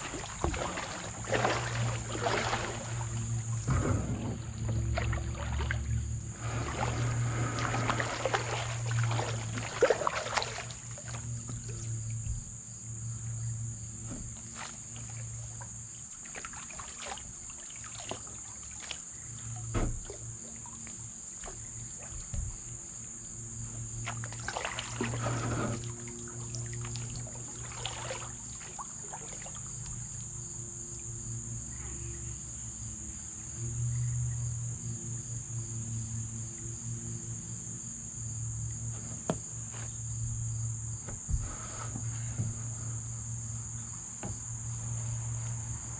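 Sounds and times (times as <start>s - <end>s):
kayak paddle knocks and splashes: 0.0s - 12.6s, 13.9s - 30.4s, 38.6s - 43.1s, 43.7s - 44.8s
insects chirring: 0.0s - 45.9s.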